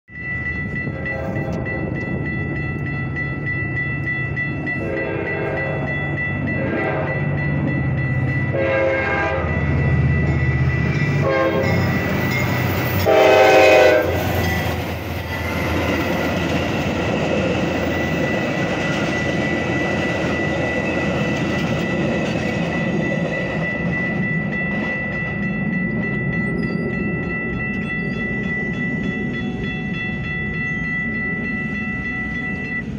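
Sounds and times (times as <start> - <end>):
crossing bell: 0.1 - 32.9
train horn blasts: 4.8 - 5.8, 6.6 - 7.2, 8.5 - 9.6, 11.2 - 11.8, 13.0 - 14.4
coaches rumbling and clacking: 14.2 - 32.9.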